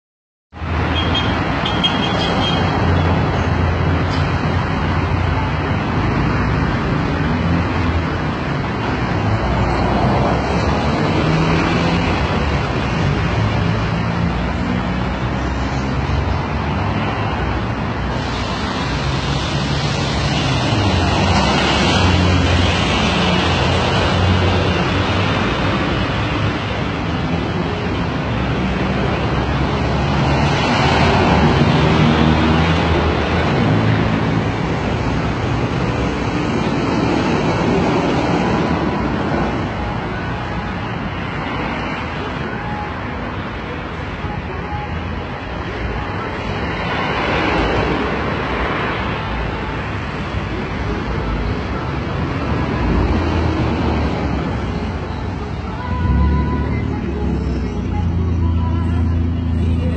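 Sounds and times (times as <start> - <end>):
road noise rushing: 0.5 - 59.9
cars driving past: 0.6 - 44.1.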